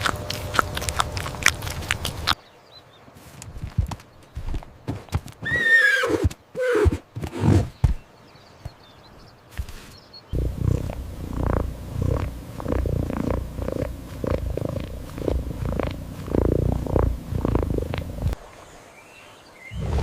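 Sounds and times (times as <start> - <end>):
animal low pulsing rumble: 0.0 - 2.4, 10.4 - 18.4.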